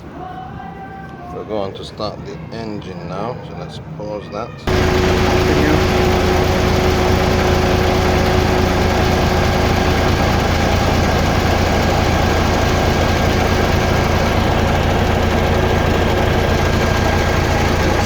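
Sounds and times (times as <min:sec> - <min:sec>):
diesel truck engine idling: 0:04.6 - 0:18.0.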